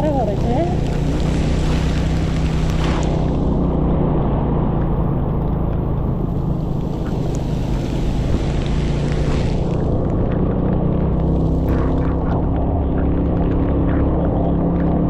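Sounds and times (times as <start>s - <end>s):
scooter engine running: 0.0s - 3.8s
wind rushing over microphone: 0.0s - 15.0s.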